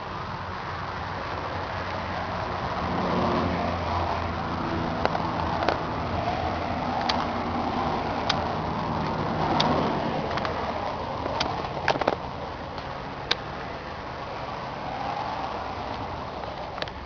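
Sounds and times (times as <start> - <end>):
sharp clicks: 6.9 - 7.4, 8.2 - 13.5.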